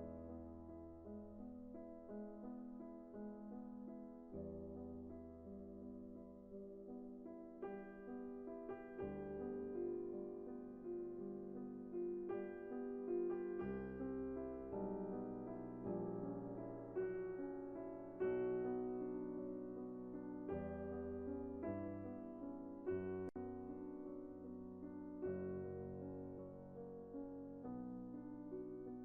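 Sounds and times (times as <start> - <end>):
soft piano chords: 0.0 - 29.0.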